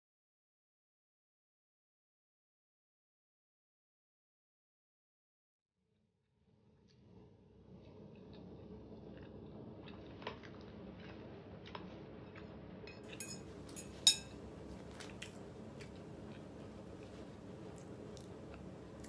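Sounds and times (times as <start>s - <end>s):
low room hum: 6.2s - 19.0s
chewing: 7.7s - 19.0s.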